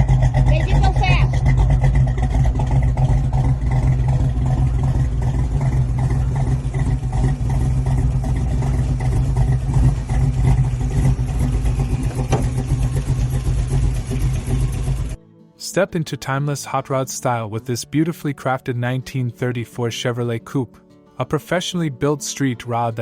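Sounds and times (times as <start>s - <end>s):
car engine rumbling: 0.0s - 15.2s.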